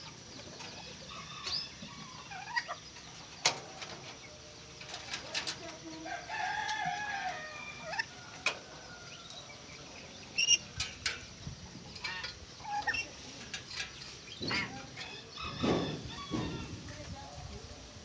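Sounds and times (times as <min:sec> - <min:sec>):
rooster crowing: 0:06.0 - 0:09.6, 0:15.0 - 0:16.8.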